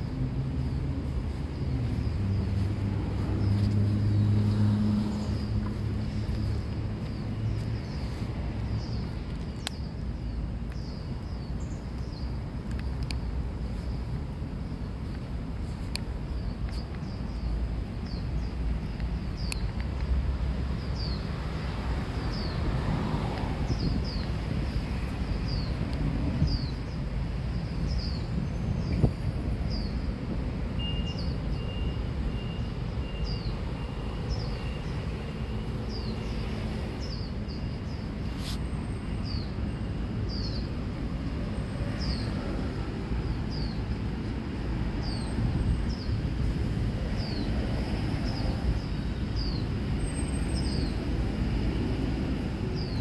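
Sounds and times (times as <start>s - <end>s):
low outdoor rumble: 0.0s - 20.9s.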